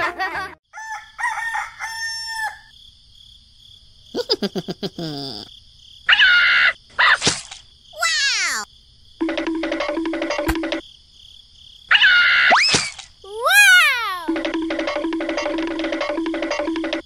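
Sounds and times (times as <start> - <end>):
comic sound effects: 8.0 - 8.6, 13.3 - 14.4.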